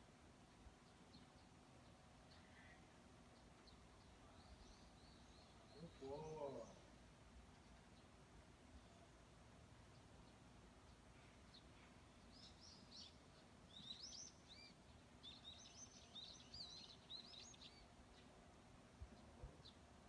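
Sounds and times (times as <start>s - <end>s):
bird chirping: 3.3s - 6.9s, 9.9s - 18.4s.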